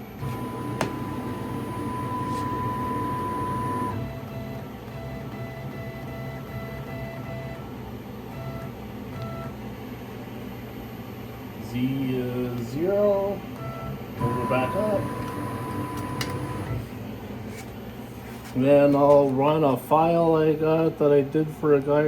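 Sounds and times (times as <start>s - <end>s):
stepper motor whining: 0.2s - 4.1s, 14.2s - 16.9s
click: 15.2s - 16.8s.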